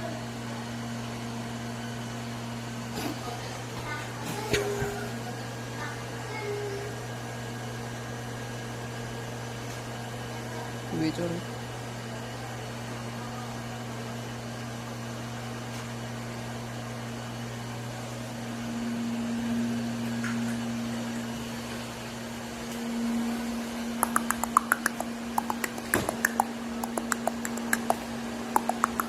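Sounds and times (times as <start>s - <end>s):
vacuum cleaner humming: 17.9s - 29.0s.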